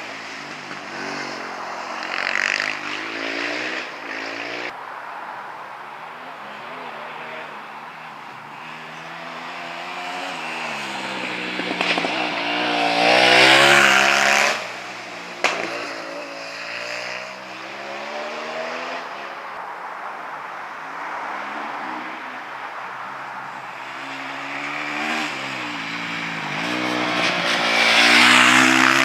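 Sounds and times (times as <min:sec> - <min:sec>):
motorcycle engine at full throttle: 0:08.6 - 0:19.1, 0:23.7 - 0:29.0.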